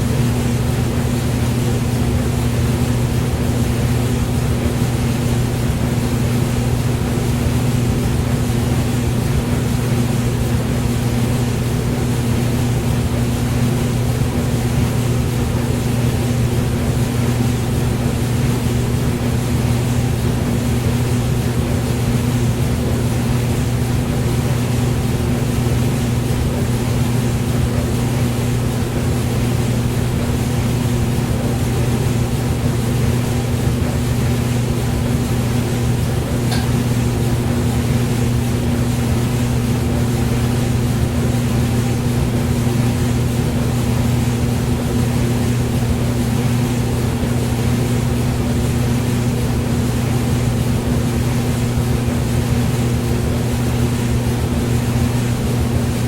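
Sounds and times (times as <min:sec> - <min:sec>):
hair dryer running: 0:36.2 - 0:37.6.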